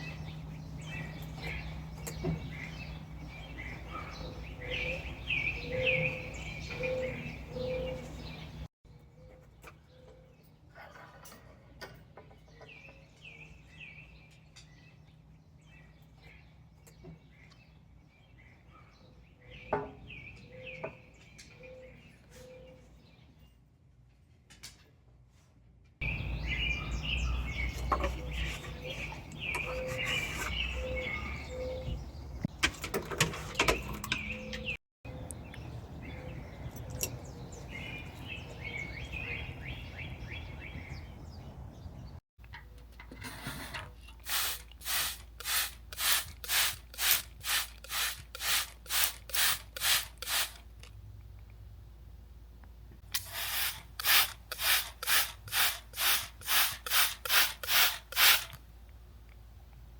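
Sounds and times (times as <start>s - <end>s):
small birds chirping: 0.0s - 10.9s, 26.0s - 32.6s, 33.4s - 42.9s, 44.0s - 51.7s, 52.6s - 59.9s
rubbing strokes: 44.2s - 50.6s, 53.2s - 58.6s.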